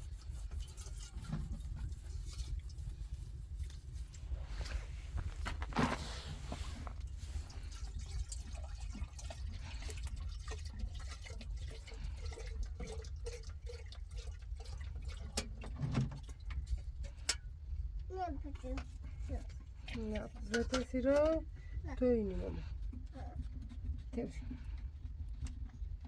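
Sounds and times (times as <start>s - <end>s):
liquid pouring and dripping: 0.0s - 17.9s
steady low rumble: 1.6s - 11.8s.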